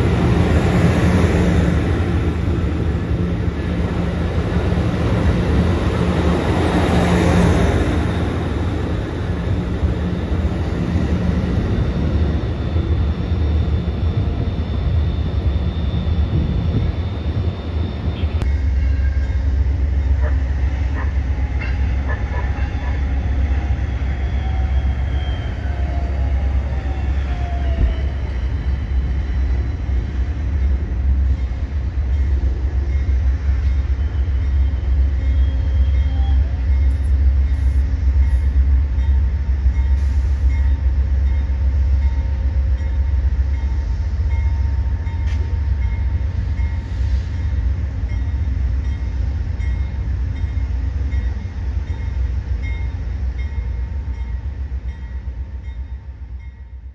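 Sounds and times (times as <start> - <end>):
train rumbling on rails: 0.0 - 56.9.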